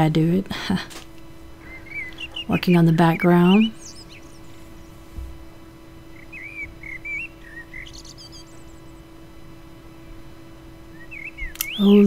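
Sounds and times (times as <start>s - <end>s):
faint steady hum: 0.0s - 12.0s
bird chirping warbling notes: 1.6s - 5.0s, 6.1s - 9.0s, 10.9s - 12.0s.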